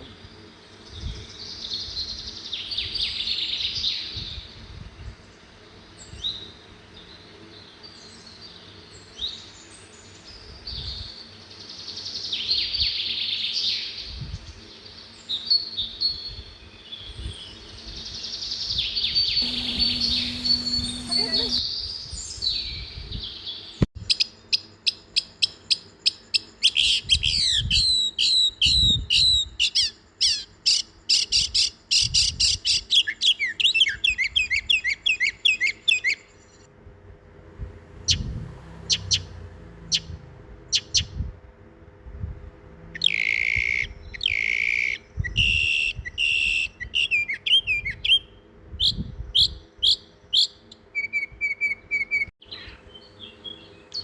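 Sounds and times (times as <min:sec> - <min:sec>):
songbird chirping: 0:19.4 - 0:21.6.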